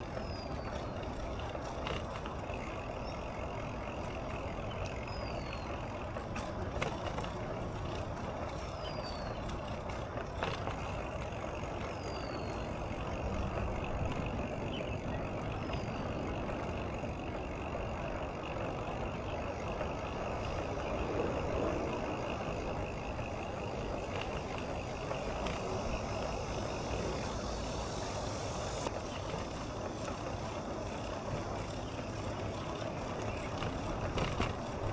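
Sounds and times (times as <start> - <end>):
low road rumble: 0.0 - 34.9
passing traffic: 0.0 - 34.9
bird chirping: 2.9 - 6.0, 11.6 - 16.9.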